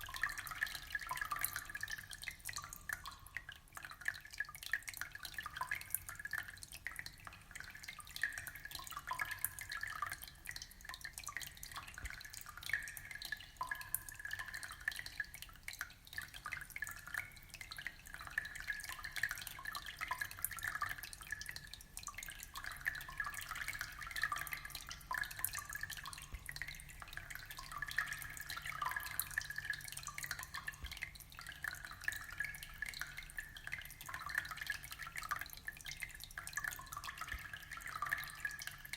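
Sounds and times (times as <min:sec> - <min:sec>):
water trickling and dripping: 0:00.0 - 0:38.9.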